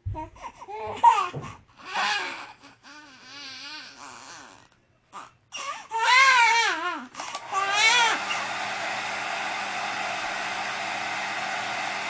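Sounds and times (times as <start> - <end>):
baby crying: 0.2 - 4.6, 5.2 - 8.4.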